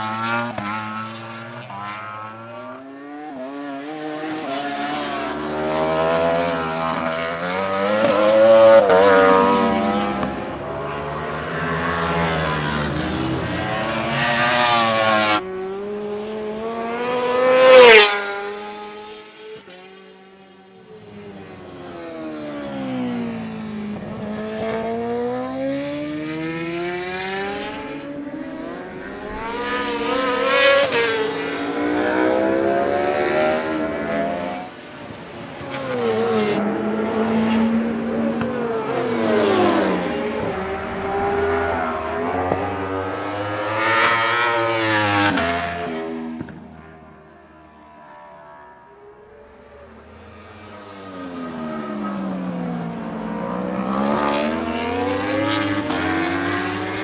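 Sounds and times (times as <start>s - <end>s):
racing motorcycles passing: 0.0s - 57.0s.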